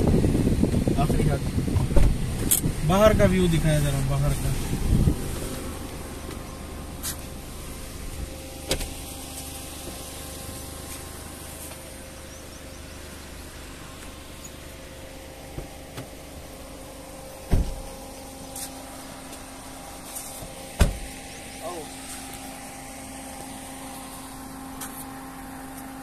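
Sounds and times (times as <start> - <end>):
car engine idling: 0.0 - 26.0
loud thump: 17.5 - 17.9, 20.8 - 21.1.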